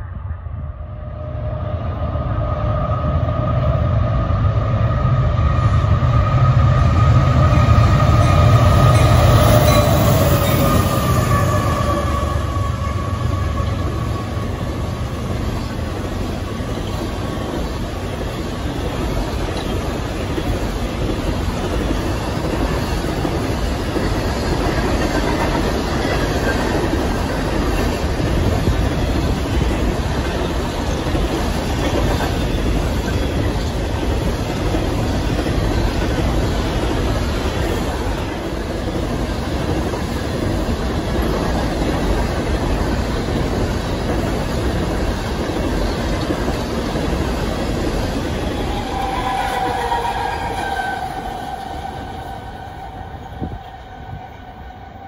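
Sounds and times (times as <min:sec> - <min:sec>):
steel train wheels on rail: 0:00.0 - 0:55.0.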